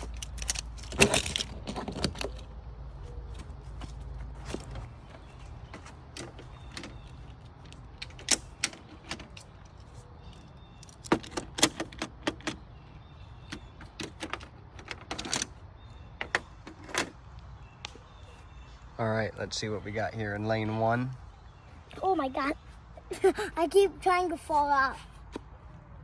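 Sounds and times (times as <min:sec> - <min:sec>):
toy cars clicking and clattering: 0:00.0 - 0:02.5, 0:05.8 - 0:10.0.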